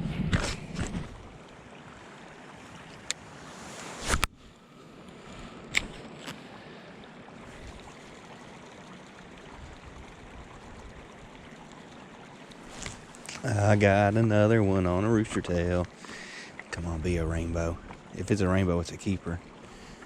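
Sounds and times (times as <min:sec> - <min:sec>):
river water flowing: 0:00.6 - 0:20.0
short swish: 0:03.6 - 0:04.3.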